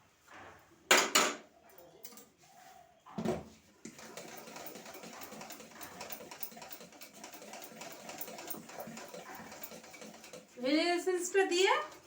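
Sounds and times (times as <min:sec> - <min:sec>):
utensil mixing batter in bowl: 0:03.8 - 0:12.0.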